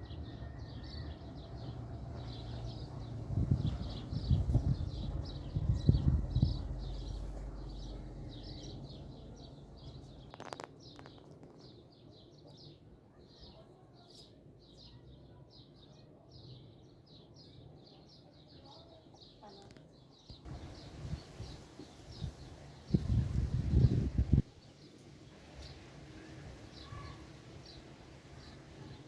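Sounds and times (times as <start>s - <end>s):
small birds chirping: 0.0s - 25.0s, 25.6s - 29.0s
low rumble: 1.6s - 10.4s.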